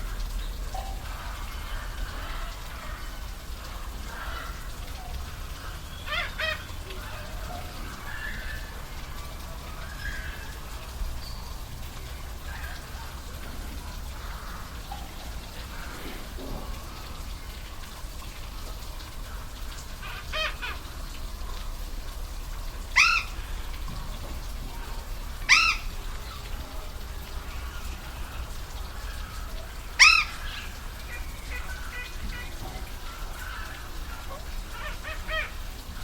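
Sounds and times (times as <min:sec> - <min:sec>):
waterfall rushing: 0:00.0 - 0:36.0
bird calling: 0:00.7 - 0:11.6, 0:22.9 - 0:23.9, 0:24.7 - 0:26.5, 0:27.5 - 0:35.8.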